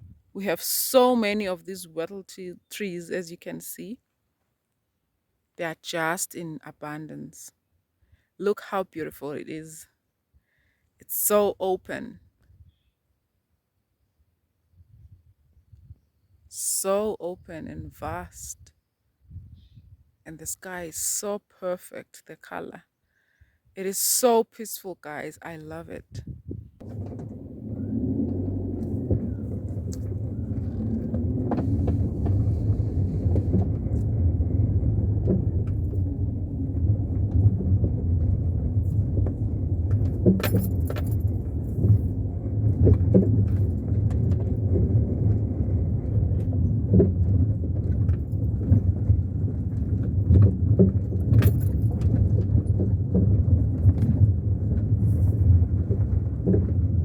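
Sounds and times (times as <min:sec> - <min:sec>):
loose things rattling and knocking: 0:26.8 - 0:45.0
car road and engine rumble: 0:26.8 - 0:57.0.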